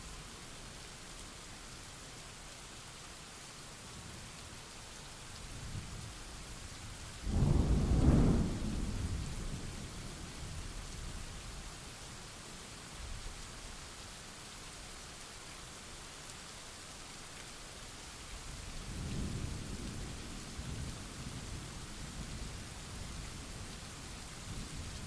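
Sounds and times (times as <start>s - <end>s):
rain hissing: 5.3s - 11.7s
thunderclap: 7.3s - 9.3s.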